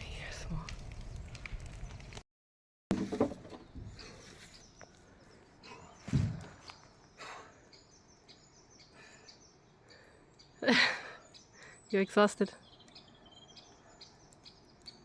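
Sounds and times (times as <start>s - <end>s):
small birds chirping: 3.5s - 15.0s
footsteps thumping on ground: 6.0s - 6.7s.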